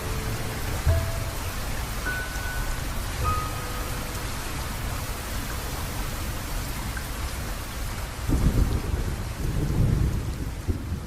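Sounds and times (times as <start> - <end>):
steady rain: 0.0 - 11.0
thunder rolling: 8.2 - 11.0.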